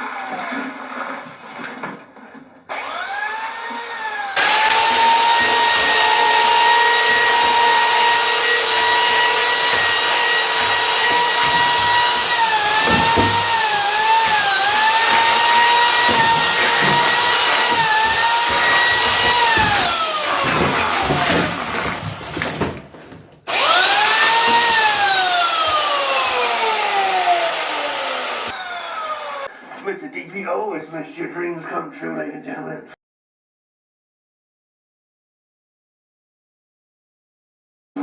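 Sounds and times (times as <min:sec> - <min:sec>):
chainsaw cutting: 0:04.4 - 0:22.8, 0:23.5 - 0:29.4.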